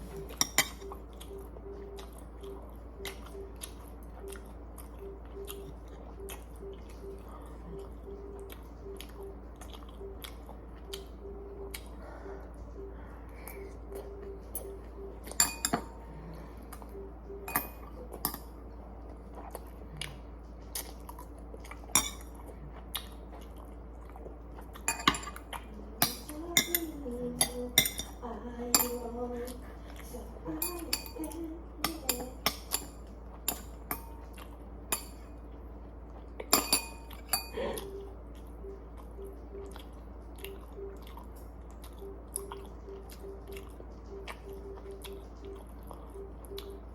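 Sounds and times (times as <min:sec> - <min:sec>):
utensils clinking against dishes: 0:00.1 - 0:00.9, 0:15.3 - 0:16.0, 0:17.4 - 0:18.6, 0:21.8 - 0:22.5, 0:24.8 - 0:29.2, 0:30.5 - 0:35.4, 0:36.4 - 0:37.8.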